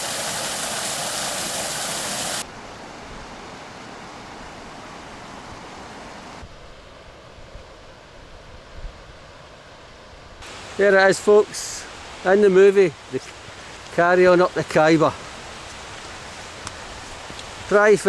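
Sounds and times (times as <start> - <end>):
falling water rushing: 0.0 - 2.5, 10.4 - 18.0.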